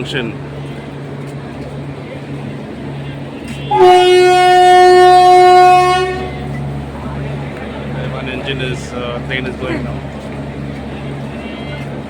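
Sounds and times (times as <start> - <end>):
train horn long blast: 2.9 - 7.3.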